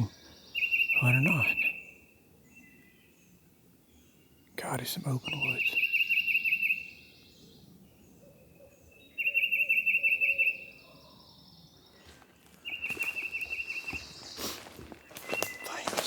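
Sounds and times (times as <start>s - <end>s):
songbird trilling: 0.0s - 2.0s, 5.0s - 7.3s, 11.8s - 16.0s.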